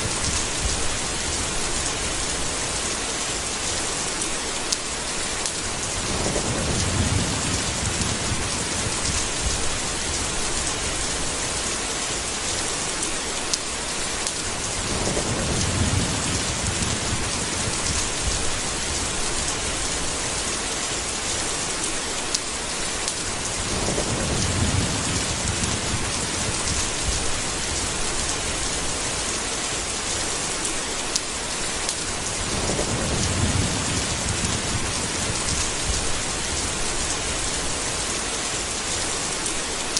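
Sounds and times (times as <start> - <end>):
rain hiss: 0.0 - 39.9
low thunder rolls: 5.8 - 11.7, 14.6 - 20.4, 23.4 - 29.2, 32.1 - 38.0.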